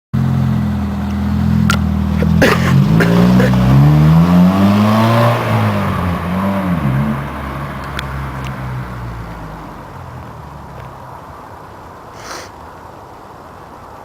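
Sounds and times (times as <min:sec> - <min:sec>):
car engine revving: 0:00.2 - 0:11.2.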